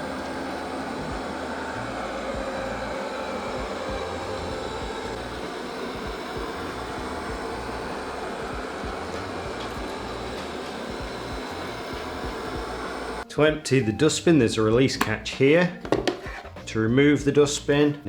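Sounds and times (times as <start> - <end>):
robot vacuum whirring: 0.0 - 13.3.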